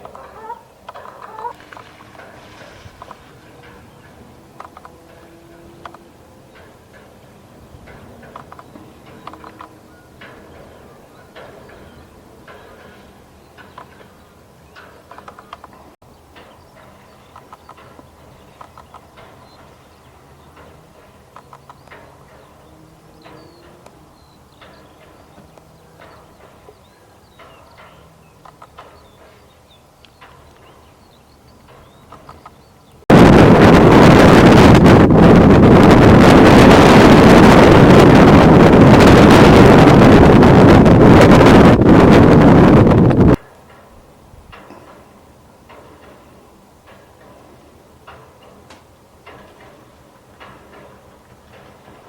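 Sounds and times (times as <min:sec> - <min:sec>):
wind noise on microphone: 0:00.0 - 0:48.6
faint songbird chirps: 0:10.8 - 0:33.0
faint sharp clicks: 0:16.4 - 0:19.7, 0:27.4 - 0:29.4.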